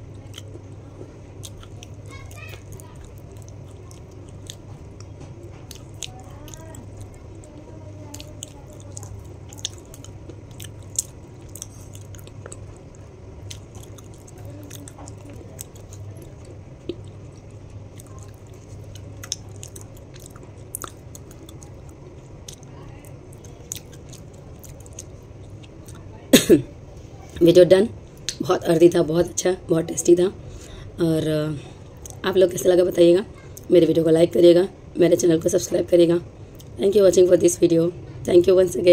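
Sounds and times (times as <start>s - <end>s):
low steady hum: 0.0s - 38.9s
chewing crunchy snack: 0.1s - 26.2s.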